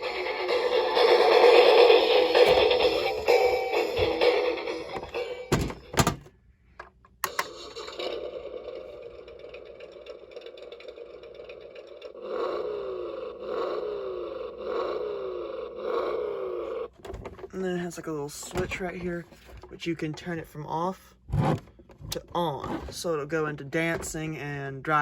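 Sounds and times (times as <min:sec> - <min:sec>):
toy electronic music: 0:00.0 - 0:05.9, 0:07.2 - 0:16.9.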